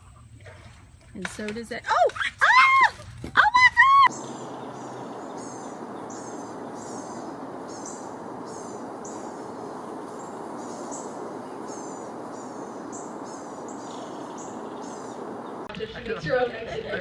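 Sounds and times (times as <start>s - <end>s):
bird chirping: 4.0s - 15.8s
steady background hiss: 4.1s - 17.0s.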